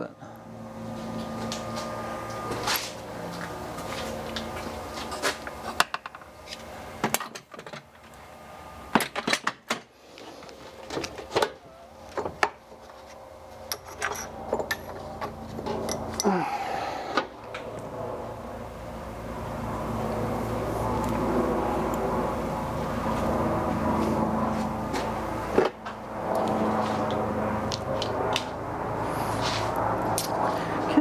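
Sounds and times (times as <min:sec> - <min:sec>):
steady low hum: 0:00.0 - 0:07.2, 0:11.8 - 0:31.0
tools and metal parts clicking: 0:13.7 - 0:16.3.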